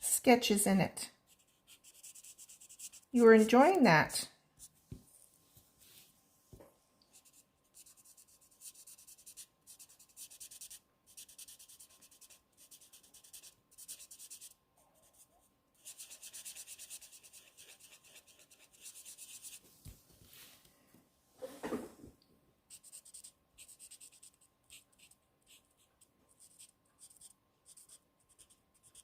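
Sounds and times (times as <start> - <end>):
marker scratching on cardstock: 1.3 - 3.5, 7.1 - 19.6, 22.7 - 29.0.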